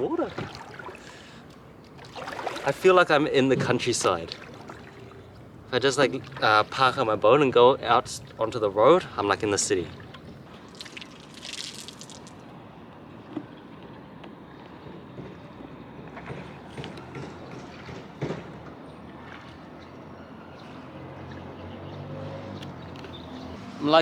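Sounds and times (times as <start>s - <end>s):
paddle splashes and knocks: 0.0s - 12.5s, 14.6s - 20.0s
steady outdoor hiss: 0.0s - 14.9s
water swishing and lapping: 0.0s - 24.0s.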